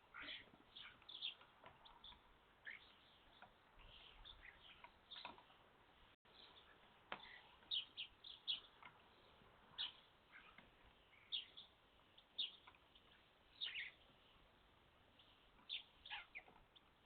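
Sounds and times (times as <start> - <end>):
starlings chirping: 0.0 - 14.4, 15.0 - 17.0.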